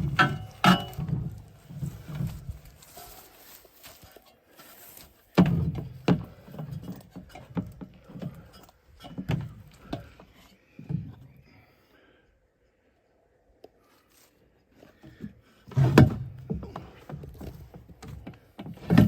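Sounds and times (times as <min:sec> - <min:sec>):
heavy knocks and thuds: 0:05.4 - 0:08.3.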